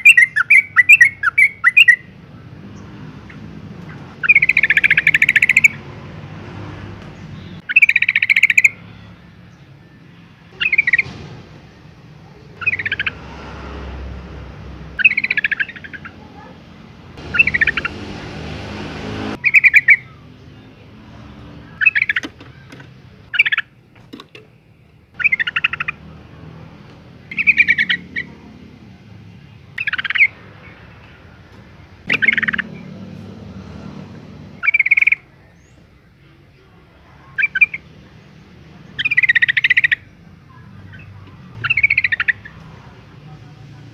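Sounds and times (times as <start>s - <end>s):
bulbul chattering call: 3.3s - 5.8s, 7.4s - 8.9s, 10.6s - 11.3s, 12.5s - 13.2s, 15.0s - 16.5s, 17.2s - 18.4s, 25.2s - 26.1s, 27.2s - 28.5s, 29.8s - 30.8s, 32.1s - 33.0s, 34.6s - 35.8s, 38.8s - 42.6s.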